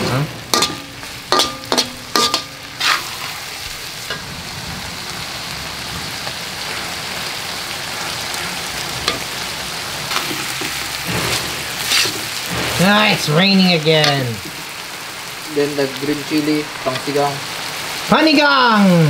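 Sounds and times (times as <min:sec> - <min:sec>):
metal spatula clanking on pan: 0:00.0 - 0:03.3, 0:04.1 - 0:04.3, 0:09.0 - 0:09.4, 0:10.1 - 0:12.4
meat sizzling in a metal pan: 0:00.0 - 0:19.0.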